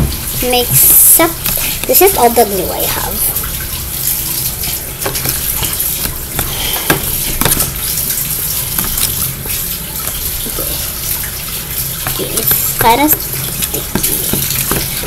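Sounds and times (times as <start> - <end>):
spoon stirring sticky slime: 5.0 - 7.8, 12.0 - 15.0.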